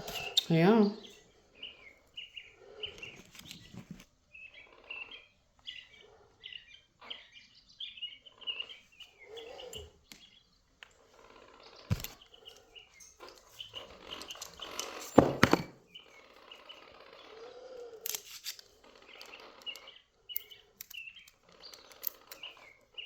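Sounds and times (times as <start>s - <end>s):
bird chirping: 0.0s - 23.0s
tools knocking on bench: 15.1s - 15.8s.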